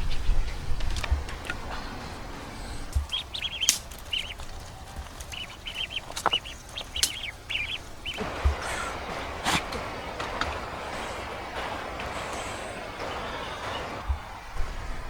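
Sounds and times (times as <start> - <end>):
bird chirping: 0.0 - 15.0
sharp clicks: 2.8 - 8.6.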